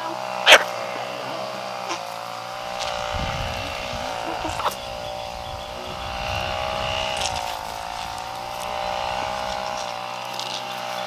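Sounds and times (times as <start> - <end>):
motor running steadily: 0.0 - 11.0.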